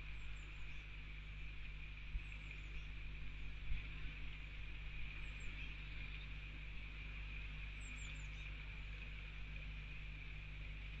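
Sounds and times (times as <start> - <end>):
low electrical hum: 0.0 - 11.0
faint high bird chirp: 7.8 - 8.5.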